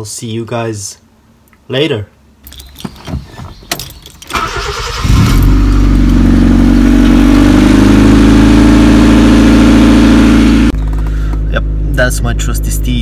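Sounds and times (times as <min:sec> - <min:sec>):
car engine starting and idling: 0:03.6 - 0:13.0.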